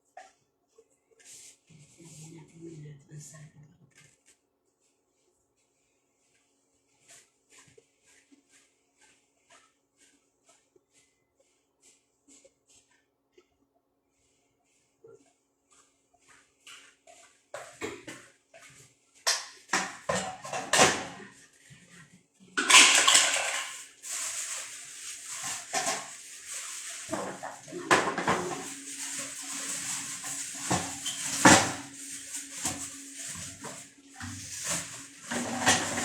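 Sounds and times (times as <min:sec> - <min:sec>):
plastic parts knocking and clattering: 0:22.6 - 0:24.2
running water: 0:23.6 - 0:36.0.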